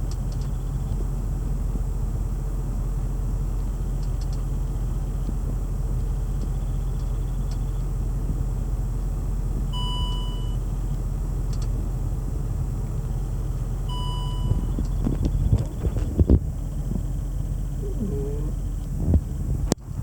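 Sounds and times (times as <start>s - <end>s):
car engine idling: 0.0s - 20.0s
short electronic beeps: 13.9s - 14.8s.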